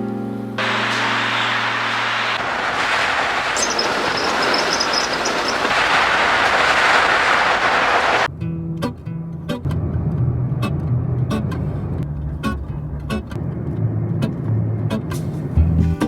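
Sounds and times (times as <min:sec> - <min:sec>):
wheel squeals: 0:00.6 - 0:06.0
train rolling on rails: 0:00.6 - 0:08.3.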